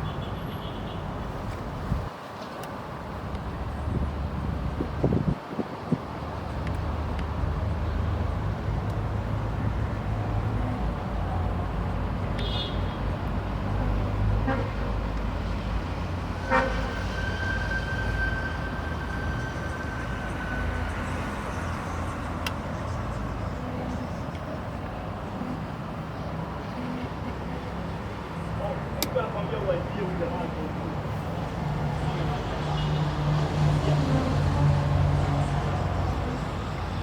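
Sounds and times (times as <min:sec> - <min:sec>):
motor vehicle rumble: 0:00.0 - 0:37.0
steady high tone: 0:16.4 - 0:24.2.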